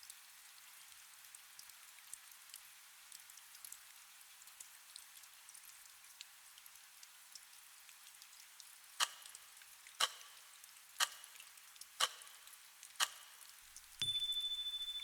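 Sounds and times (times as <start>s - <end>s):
faint steady rain: 0.0s - 15.0s
sharp ticks: 9.0s - 9.3s, 10.0s - 10.4s, 12.0s - 13.4s.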